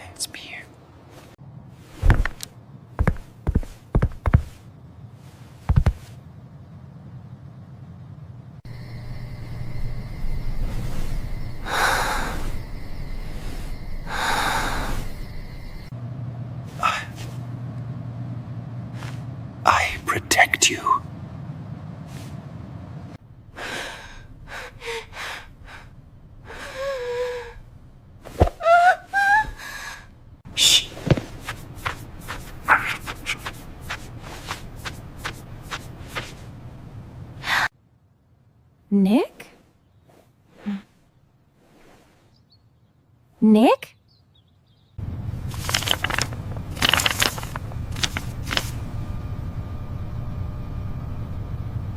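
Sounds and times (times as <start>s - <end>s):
steady low hum: 0.0s - 38.9s, 45.0s - 51.9s
soft shuffling footsteps: 1.0s - 6.2s, 18.9s - 19.3s, 30.8s - 36.6s, 45.5s - 48.9s.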